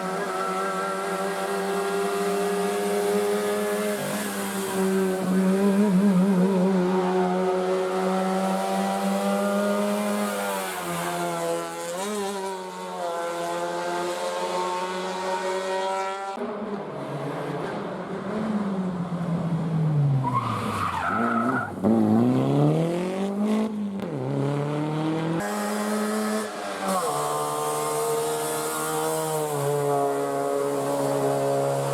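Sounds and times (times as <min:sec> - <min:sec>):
tyre squeal: 0:00.0 - 0:01.9
rally car engines revving: 0:00.0 - 0:31.9.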